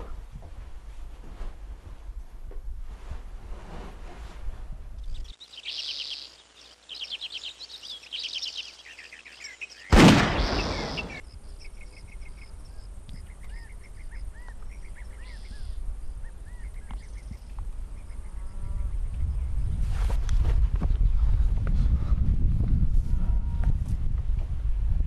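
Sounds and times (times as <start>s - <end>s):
bird chirps and calls: 5.0s - 17.4s
small birds trilling: 5.0s - 19.5s
sudden loud bang: 9.9s - 11.2s.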